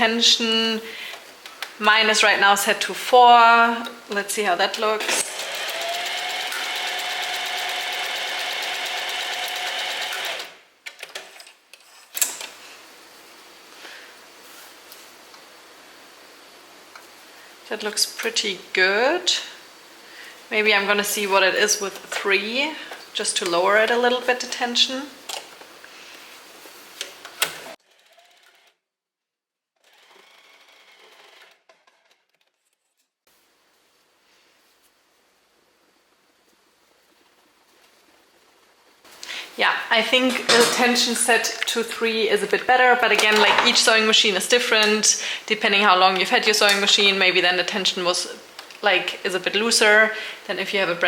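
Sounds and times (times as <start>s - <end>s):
sewing machine running: 5.0s - 10.6s, 29.8s - 31.6s.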